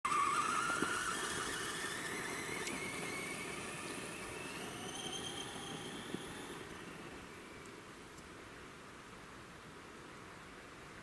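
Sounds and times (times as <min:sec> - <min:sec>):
toy truck electric motor whining: 0:00.1 - 0:07.7.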